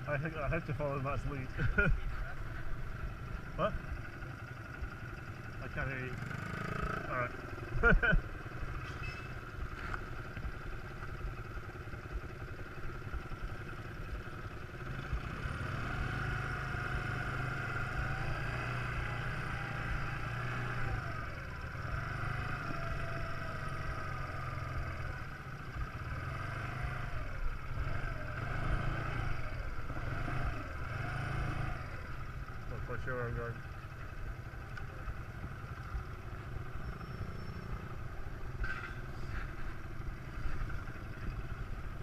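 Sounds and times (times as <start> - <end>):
quad bike engine revving: 4.7 - 9.2, 13.4 - 33.6.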